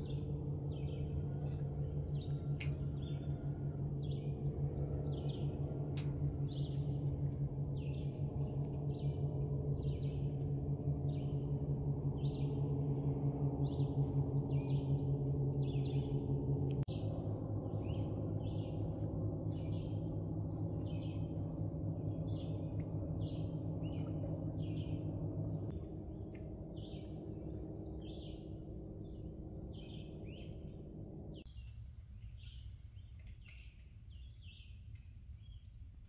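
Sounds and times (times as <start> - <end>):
steady low hum: 0.0 - 36.0
songbird chirping: 12.2 - 35.8.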